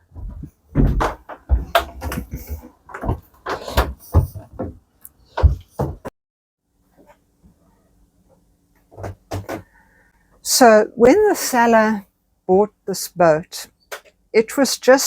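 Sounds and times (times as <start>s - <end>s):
knocks and thuds of movement: 0.1s - 6.1s.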